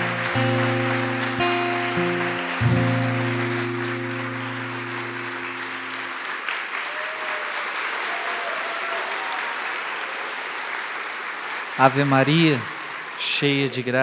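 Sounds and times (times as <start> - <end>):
worship music chord: 0.0 - 6.4
crowd applauding: 0.0 - 14.0.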